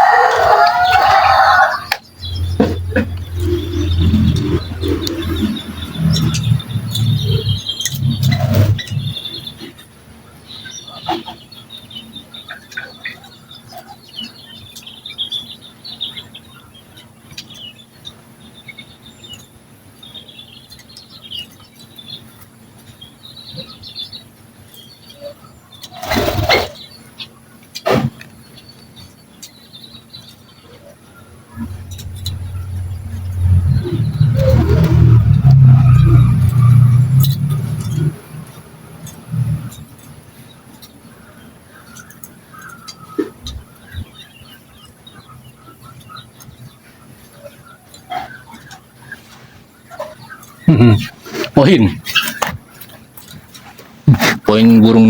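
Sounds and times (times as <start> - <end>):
small birds chirping: 1.4 - 26.1, 28.4 - 54.0
vehicle engine rumbling: 2.1 - 9.5, 31.5 - 40.1.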